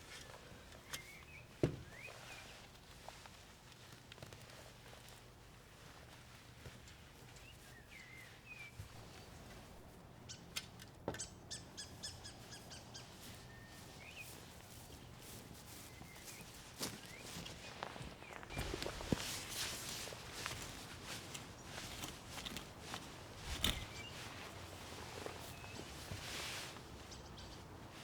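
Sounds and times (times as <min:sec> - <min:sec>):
faint bird chirps: 0:00.1 - 0:02.7, 0:07.3 - 0:09.5, 0:11.2 - 0:14.6, 0:15.7 - 0:19.0.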